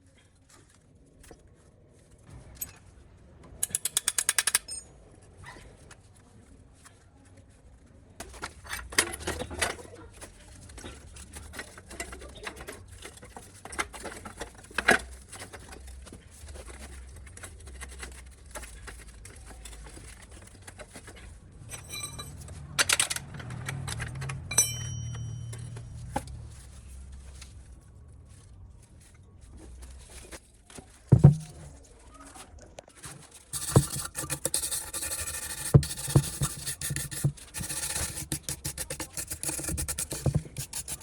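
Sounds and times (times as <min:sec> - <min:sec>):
metal parts and tools clicking: 0:03.6 - 0:05.0, 0:16.6 - 0:26.4, 0:33.5 - 0:41.0
high ring: 0:24.5 - 0:26.2.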